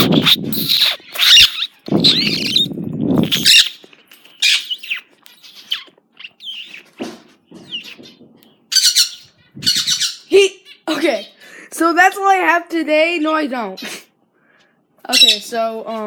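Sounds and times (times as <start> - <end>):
birds chirping: 0.0 - 11.5, 15.1 - 15.7
birds squawking harshly: 0.0 - 11.5, 15.1 - 15.6.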